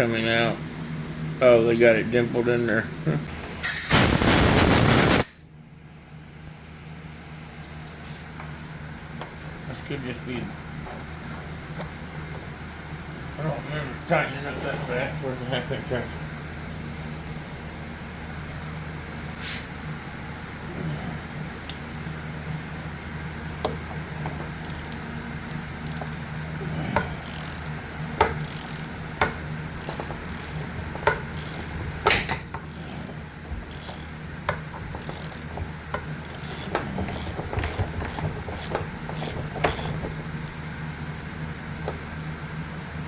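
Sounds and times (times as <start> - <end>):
ratchet wrench clicking: 21.6 - 22.0, 24.6 - 26.2, 27.2 - 40.1.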